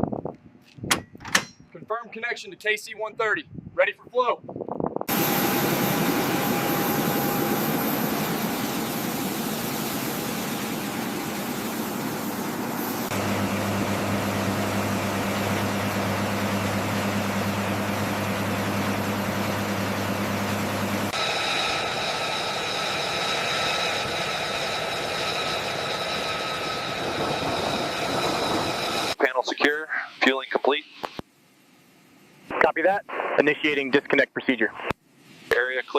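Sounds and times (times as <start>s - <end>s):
aircraft engines droning: 5.1s - 29.2s
high whine with steady tones: 5.1s - 35.9s.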